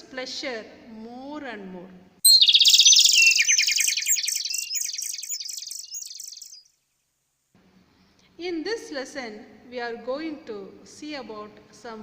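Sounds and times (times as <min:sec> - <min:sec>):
bird chirping: 0:02.2 - 0:07.1.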